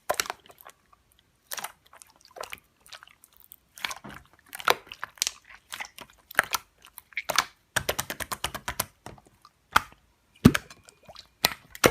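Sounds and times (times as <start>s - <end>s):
slime squishing: 0.0s - 11.9s
air pockets popping in slime: 11.4s - 11.9s.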